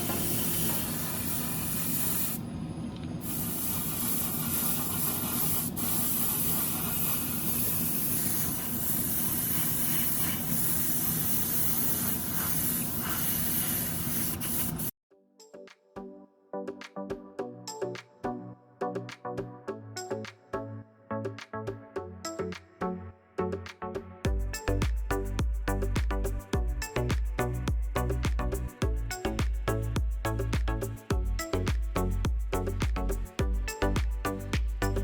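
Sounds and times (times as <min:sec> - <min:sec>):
spray paint hissing: 0:00.0 - 0:02.4, 0:03.2 - 0:14.9, 0:24.3 - 0:35.0.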